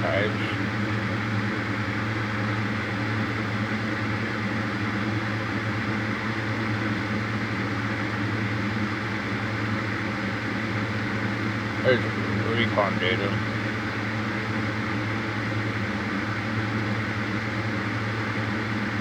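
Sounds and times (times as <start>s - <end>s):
machine hum: 0.0s - 1.6s, 11.5s - 15.8s.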